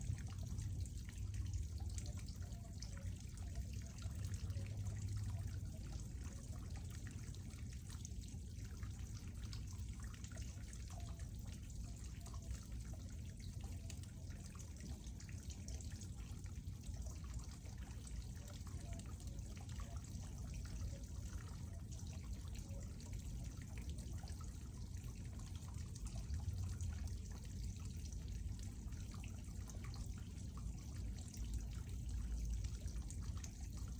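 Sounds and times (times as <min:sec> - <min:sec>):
water trickling and dripping: 0:00.0 - 0:33.9.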